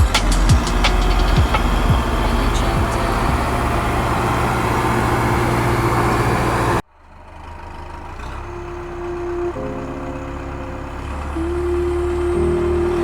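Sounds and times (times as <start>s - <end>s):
steady whining tones: 0.0s - 6.8s
small tractor motor running: 0.3s - 11.4s.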